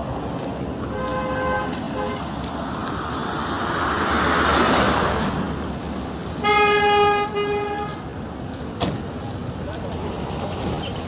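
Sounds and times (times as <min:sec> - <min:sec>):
road traffic noise: 0:00.0 - 0:11.0
vehicle horn honking: 0:00.9 - 0:02.2, 0:06.4 - 0:08.0.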